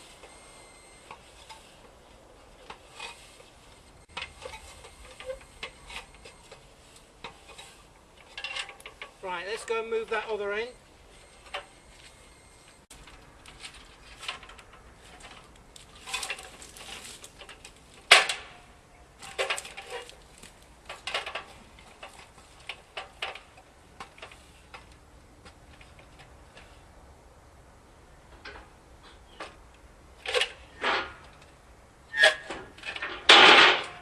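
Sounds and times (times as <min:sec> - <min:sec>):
steel gear knocking and clattering: 0:32.5 - 0:34.0.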